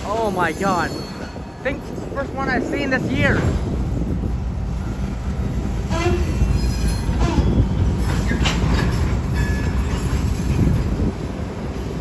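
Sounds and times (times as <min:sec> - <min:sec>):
train wheels rumbling on rail: 0:00.0 - 0:12.0
wheels clacking over rail joints: 0:05.2 - 0:12.0
wheel squeal: 0:05.9 - 0:10.7.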